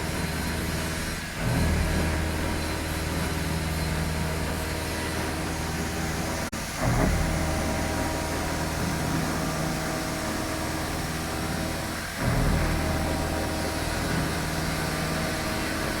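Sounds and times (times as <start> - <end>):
milling machine humming: 0.0 - 16.0.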